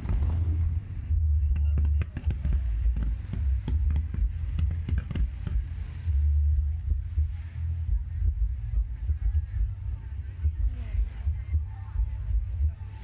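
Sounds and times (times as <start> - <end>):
deep continuous rumble: 0.0 - 13.0.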